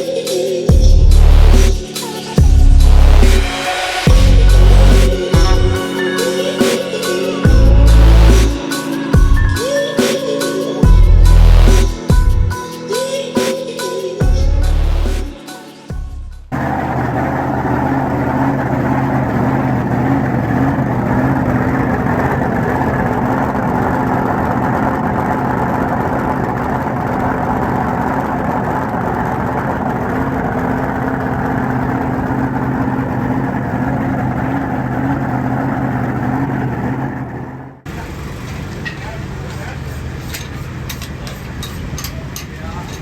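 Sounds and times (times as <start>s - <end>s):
boat engine idling: 16.5s - 43.0s.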